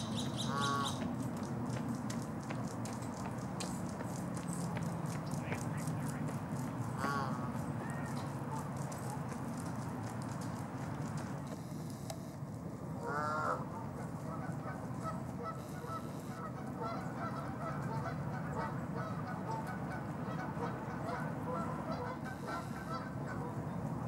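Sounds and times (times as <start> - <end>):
goose honking: 0.0 - 1.0, 7.0 - 8.7, 13.0 - 23.7
low background noise: 0.0 - 24.0.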